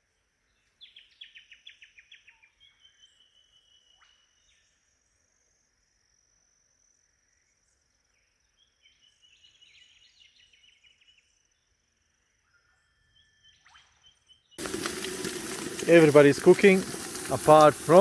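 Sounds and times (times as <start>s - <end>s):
high insect drone: 14.6s - 18.0s
loud sizzling: 14.6s - 18.0s.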